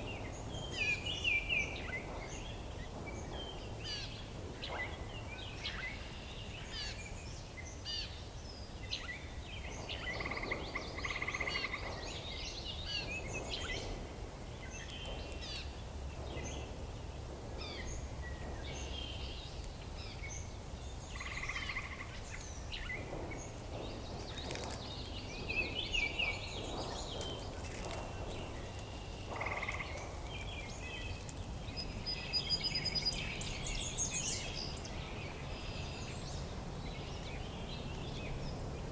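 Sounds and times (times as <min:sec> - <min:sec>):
low steady rumble: 0:00.0 - 0:38.9
songbirds chirping and singing: 0:00.0 - 0:38.9.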